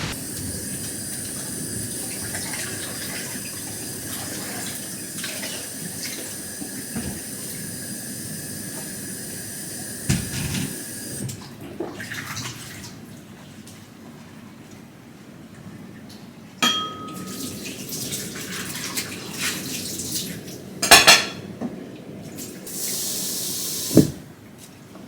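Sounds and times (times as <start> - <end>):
water running from tap: 0.1 - 13.0, 17.0 - 20.7, 22.3 - 24.2.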